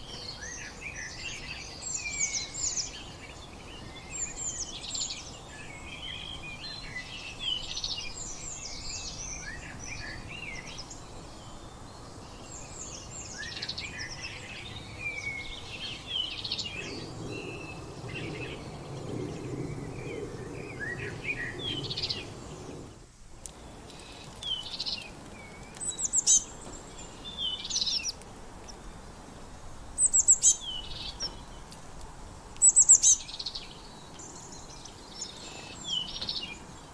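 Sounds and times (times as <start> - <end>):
small birds chirping: 0.0 - 36.9
faint low rumble: 15.9 - 23.0.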